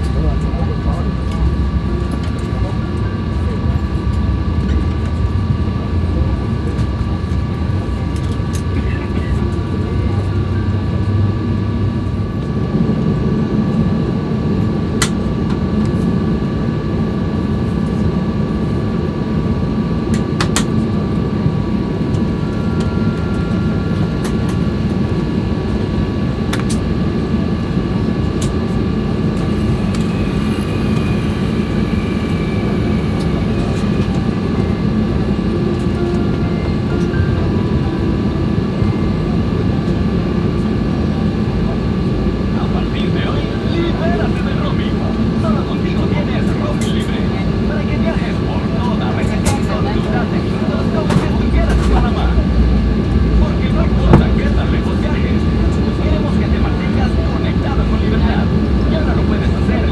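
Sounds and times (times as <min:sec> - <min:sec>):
aircraft cabin rumble: 0:00.0 - 0:27.3, 0:28.0 - 0:59.8
high whine: 0:19.2 - 0:26.7, 0:28.4 - 0:46.7.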